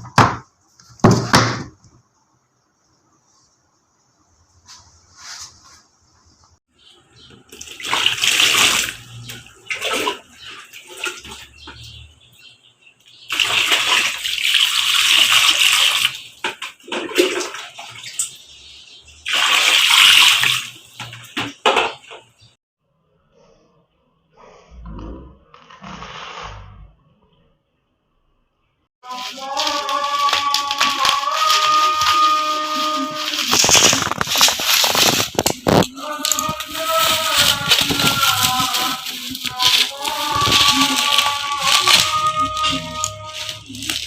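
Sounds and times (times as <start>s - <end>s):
running water gushing: 7.4s - 11.6s, 13.3s - 18.4s, 29.0s - 44.0s.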